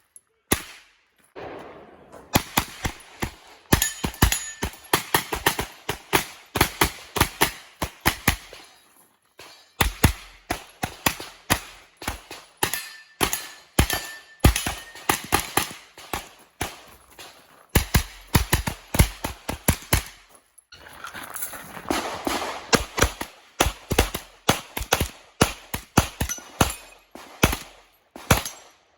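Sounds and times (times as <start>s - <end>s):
rapid gunfire: 21.9s - 28.5s.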